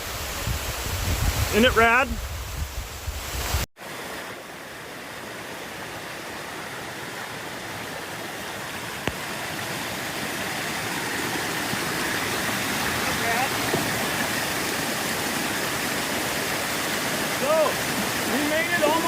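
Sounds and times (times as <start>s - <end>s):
rush of falling water: 0.0s - 19.0s.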